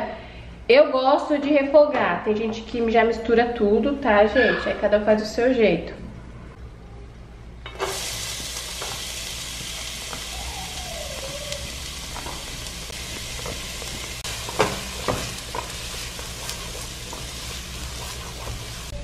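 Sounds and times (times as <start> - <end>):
onion sizzling in oil: 7.8 - 19.0
utensil knocking on pan: 14.4 - 15.7.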